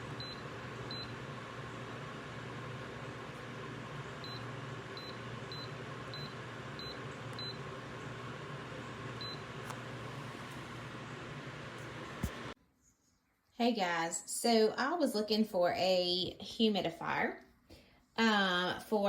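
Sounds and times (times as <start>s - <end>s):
humidifier hum and hiss: 0.0s - 12.6s.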